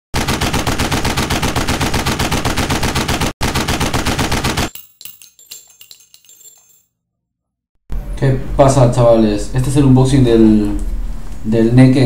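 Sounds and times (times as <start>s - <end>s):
rapid automatic gunfire: 0.1s - 4.7s
faint metallic clinks and ringing: 4.7s - 6.9s.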